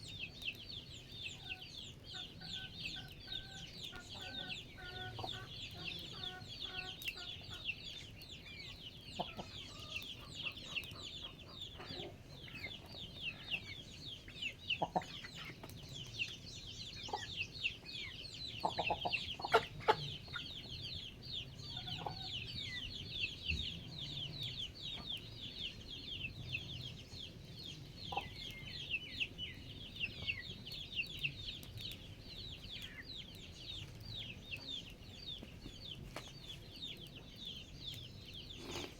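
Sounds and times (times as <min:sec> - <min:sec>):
chickens chirping: 0:00.0 - 0:38.9.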